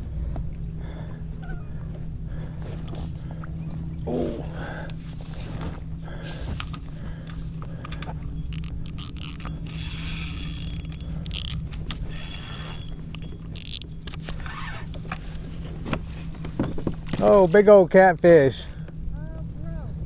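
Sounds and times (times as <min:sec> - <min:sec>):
steady low hum: 0:00.0 - 0:20.0
fishing reel clicking and whirring: 0:06.2 - 0:15.5, 0:17.2 - 0:19.0.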